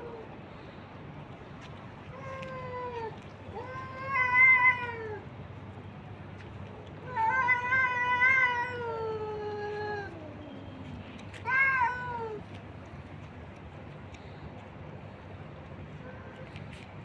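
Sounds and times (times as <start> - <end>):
cat meowing: 2.1 - 5.2, 7.1 - 10.3, 11.4 - 12.4.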